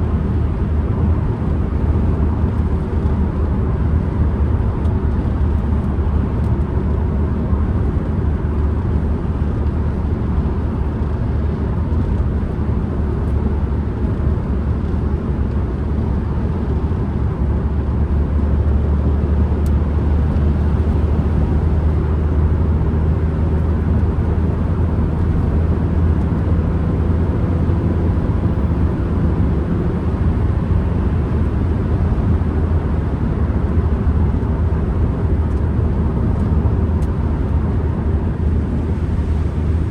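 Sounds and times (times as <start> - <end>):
low road rumble: 0.0 - 39.9
van engine running: 0.0 - 39.9.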